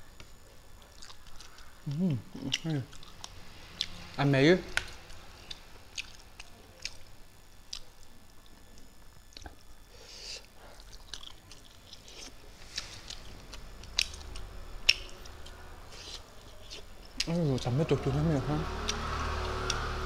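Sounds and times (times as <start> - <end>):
chewing and mouth smacks: 0.8 - 1.7, 2.4 - 4.0, 4.7 - 7.0, 10.8 - 17.4.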